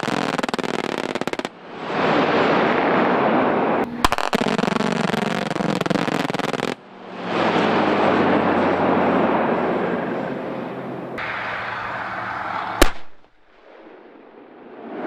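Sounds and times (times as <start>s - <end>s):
loud steady rushing noise: 1.1s - 15.0s
rapid crackling gunfire: 4.0s - 6.8s, 12.8s - 14.4s.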